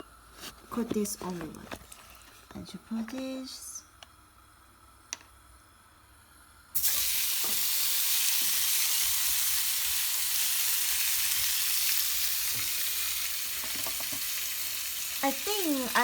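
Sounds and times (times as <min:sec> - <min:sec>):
meat sizzling in hot oil: 0:06.8 - 0:16.0.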